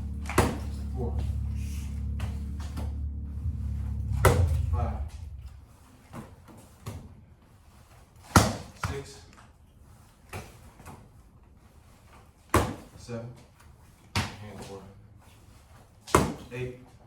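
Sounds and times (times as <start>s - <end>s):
sharp thumps: 0.0s - 5.7s.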